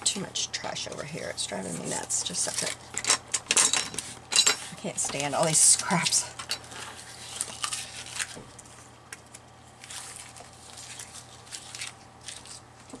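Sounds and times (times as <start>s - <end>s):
paper scraps rustling: 5.2s - 8.9s, 9.8s - 13.0s.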